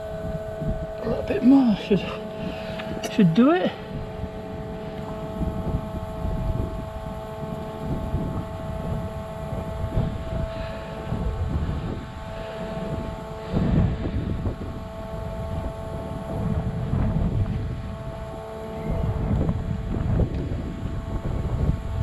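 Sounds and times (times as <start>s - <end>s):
steady two-tone hum: 0.0s - 22.0s
wind buffeting microphone: 0.0s - 22.0s.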